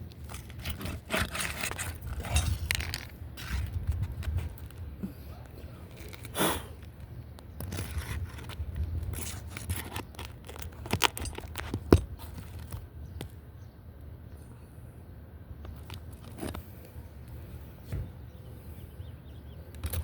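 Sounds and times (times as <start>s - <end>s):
scraping and tearing roof shingles: 0.2s - 4.8s.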